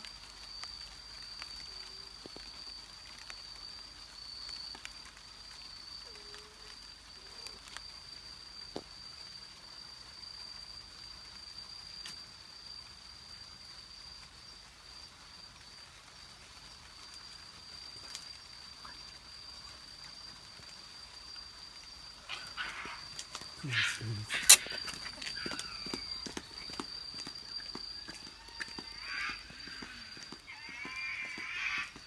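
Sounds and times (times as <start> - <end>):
night animal calling: 6.0 - 7.7, 22.1 - 32.0.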